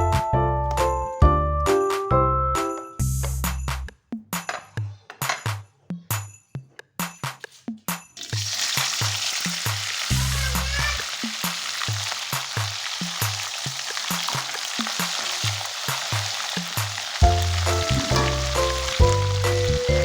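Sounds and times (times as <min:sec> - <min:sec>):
food sizzling in hot oil: 0:08.2 - 0:20.0.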